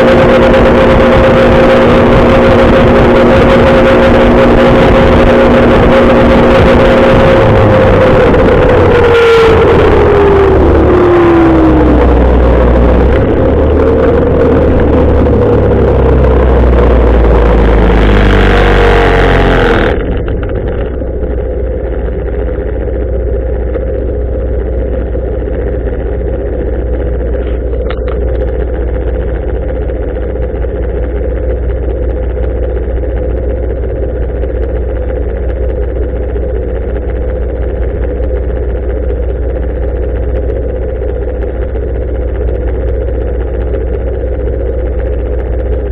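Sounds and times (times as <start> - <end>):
wind on microphone: 0.0 - 20.8
motorcycle engine running: 0.0 - 45.9.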